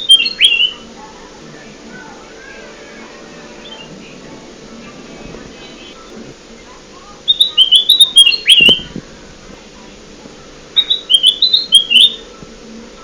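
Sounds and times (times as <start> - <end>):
bird chirping: 0.0 - 0.9, 7.3 - 8.9, 10.8 - 12.2.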